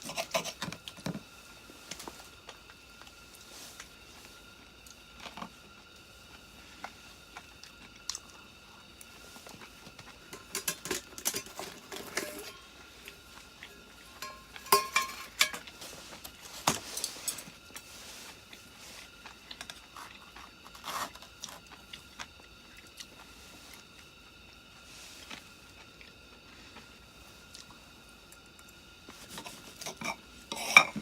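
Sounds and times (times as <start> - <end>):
metal utensils clinking on cookware: 10.3 - 12.7, 14.0 - 15.7, 16.7 - 17.5, 29.8 - 31.0.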